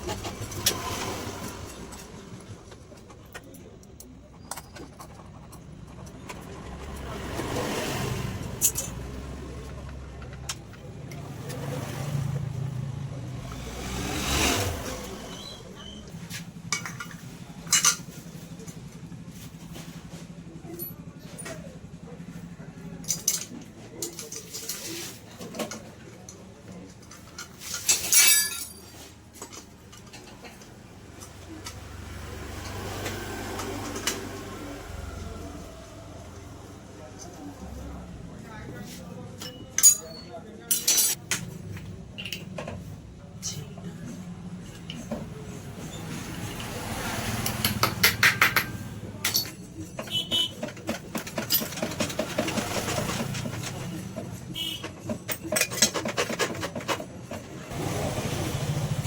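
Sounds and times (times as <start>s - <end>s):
motor vehicle passing: 0.0s - 2.7s, 6.3s - 10.2s, 11.2s - 16.6s, 31.0s - 38.6s, 45.2s - 49.2s, 57.6s - 59.0s
tools clinking on engine parts: 8.6s - 11.7s, 15.4s - 31.9s, 39.1s - 57.6s
ringing metallic clatter: 27.6s - 29.1s, 39.4s - 41.2s.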